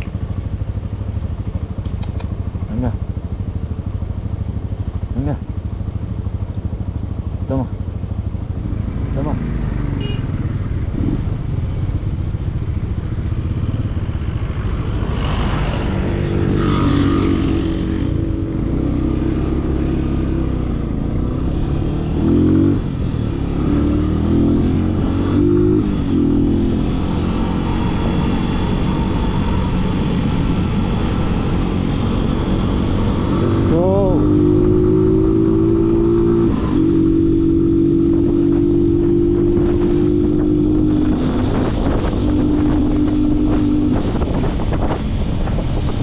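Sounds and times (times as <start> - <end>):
motorcycle engine riding: 0.0 - 46.0
wind noise: 10.0 - 46.0.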